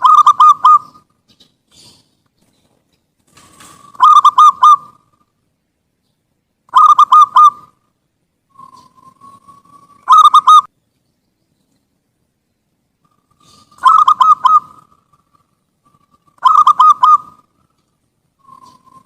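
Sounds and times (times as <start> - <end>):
dove cooing: 0.0 - 2.2, 3.4 - 5.2, 6.7 - 7.8, 8.5 - 10.7, 13.0 - 17.8, 18.4 - 19.0.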